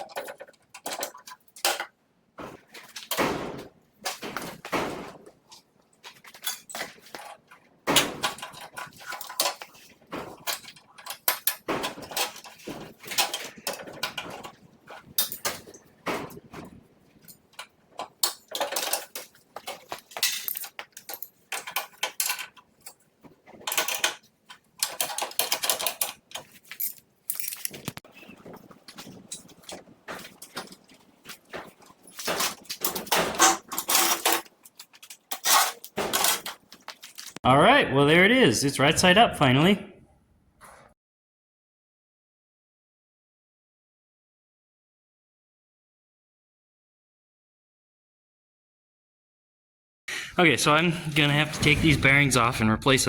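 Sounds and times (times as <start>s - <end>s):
metal tools clinking and clanking: 5.5s - 37.4s.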